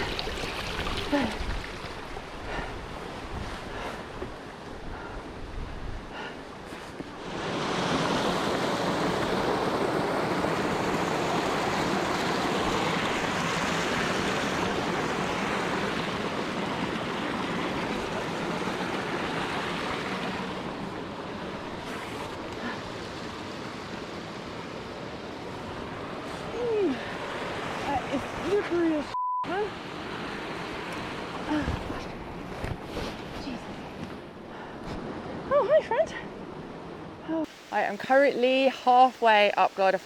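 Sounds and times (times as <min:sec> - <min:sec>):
stream rushing over rocks: 0:00.0 - 0:03.4, 0:07.1 - 0:29.1.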